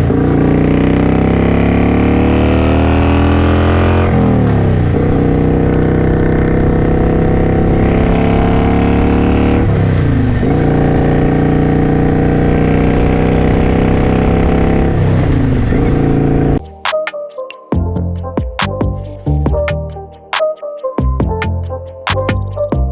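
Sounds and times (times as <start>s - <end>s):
motorcycle engine accelerating: 0.0s - 16.6s.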